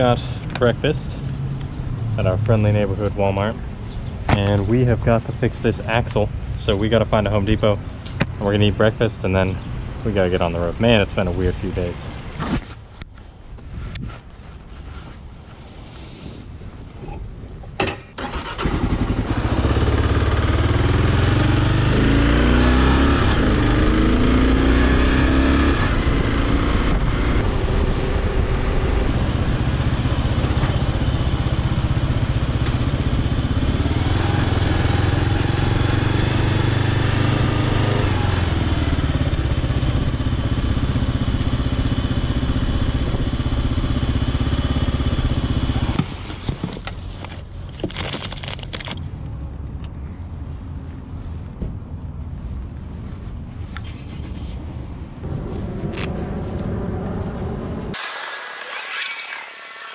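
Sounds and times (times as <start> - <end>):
motorcycle engine running: 18.7 - 46.8.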